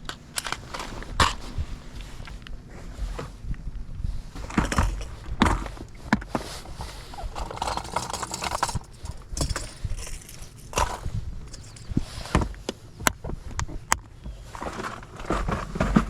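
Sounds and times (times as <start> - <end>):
rustling: 4.3 - 12.4
knocks and clunks: 4.4 - 12.6.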